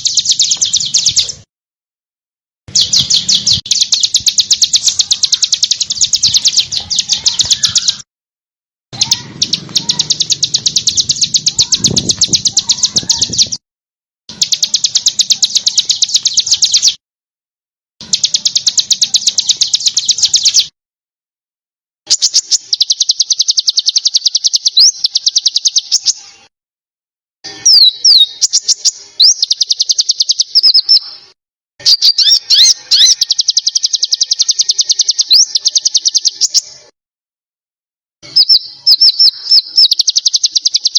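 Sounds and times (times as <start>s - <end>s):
sliding whistled bird notes: 0.0s - 1.5s, 2.7s - 8.0s, 9.0s - 13.6s, 14.3s - 17.0s, 18.1s - 20.7s, 22.1s - 26.4s, 27.6s - 36.8s, 38.3s - 40.9s
songbird high trills: 2.7s - 8.0s, 9.0s - 13.6s, 22.1s - 26.2s, 27.6s - 36.8s, 38.2s - 40.9s.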